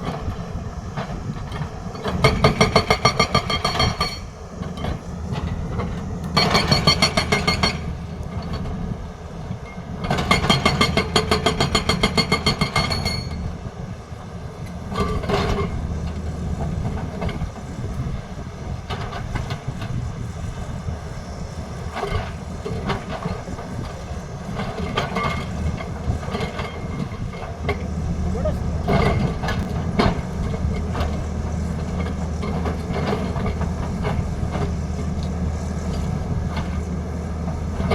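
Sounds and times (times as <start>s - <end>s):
diesel engine running: 0.0s - 37.9s
hydraulic breaker hammering: 2.0s - 4.3s, 6.4s - 7.9s.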